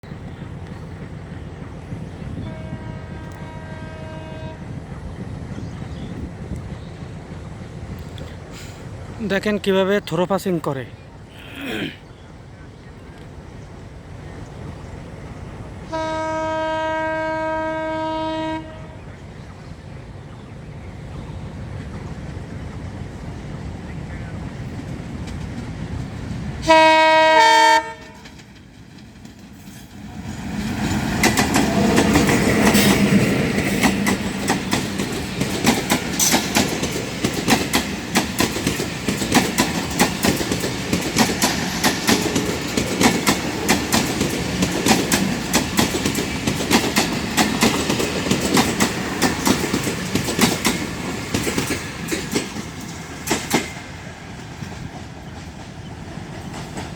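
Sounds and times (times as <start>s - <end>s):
train passing rumble: 0.0s - 56.9s
train horn: 2.3s - 4.8s, 15.9s - 19.2s, 26.6s - 28.4s.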